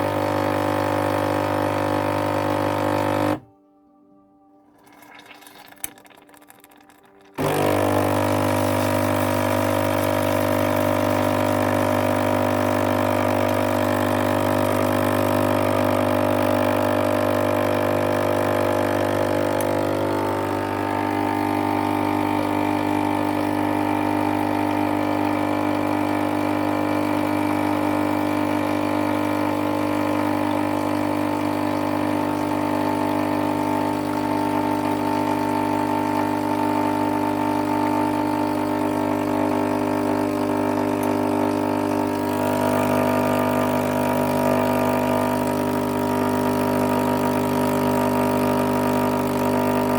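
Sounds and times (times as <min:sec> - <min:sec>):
espresso machine pump droning: 0:00.0 - 0:03.4, 0:04.8 - 0:49.9.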